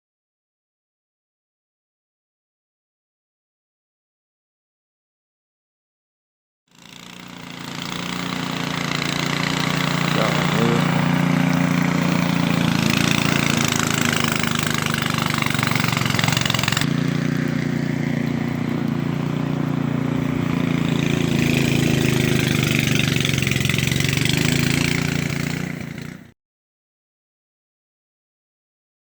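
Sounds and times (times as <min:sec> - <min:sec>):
small engine running: 0:06.7 - 0:26.4.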